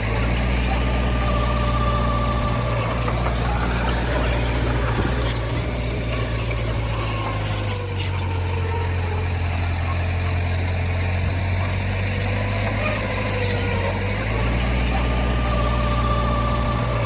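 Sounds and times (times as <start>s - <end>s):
thin wavering whine: 0.0s - 10.3s
heavy diesel engine running: 0.0s - 17.0s.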